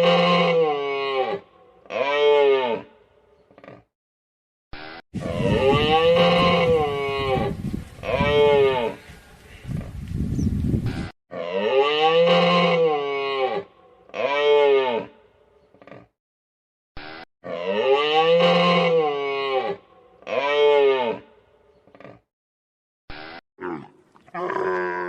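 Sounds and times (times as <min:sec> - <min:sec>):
cattle mooing: 0:05.2 - 0:09.0, 0:11.3 - 0:15.1.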